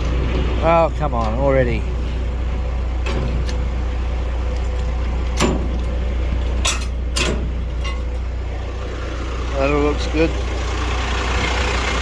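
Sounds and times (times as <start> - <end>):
diesel truck engine idling: 0.0 - 12.0
sharp clicks and knocks: 4.5 - 8.2.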